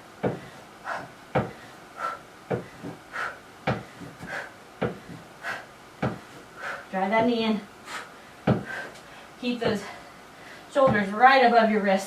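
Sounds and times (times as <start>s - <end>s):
thumps on a workout box: 0.2s - 0.5s, 1.3s - 1.6s, 2.5s - 3.0s, 3.6s - 5.3s, 6.0s - 6.2s, 8.4s - 8.8s.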